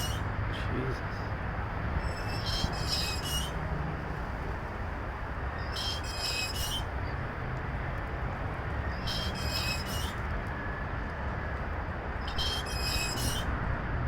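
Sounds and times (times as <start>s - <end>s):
high chirping squeal: 0.0s - 0.2s, 2.0s - 3.6s, 5.6s - 6.9s, 8.9s - 10.2s, 12.2s - 13.5s
traffic rumble: 0.0s - 14.0s.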